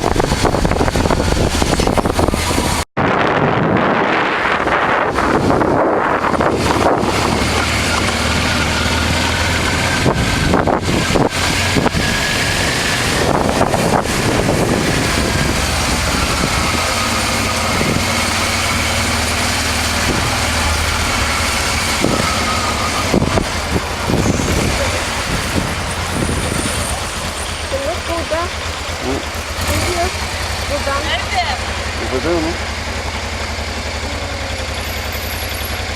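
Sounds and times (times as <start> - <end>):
wind noise on microphone: 0.0 - 27.4
motorcycle engine running: 0.0 - 35.9.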